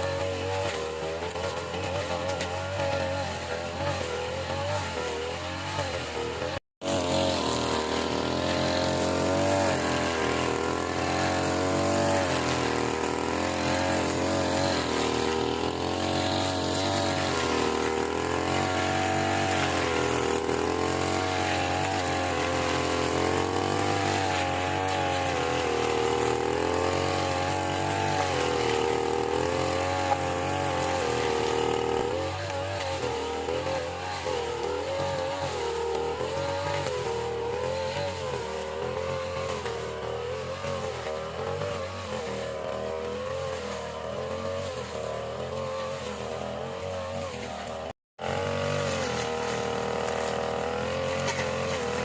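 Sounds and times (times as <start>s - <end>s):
lawn mower engine running: 0.0s - 52.0s.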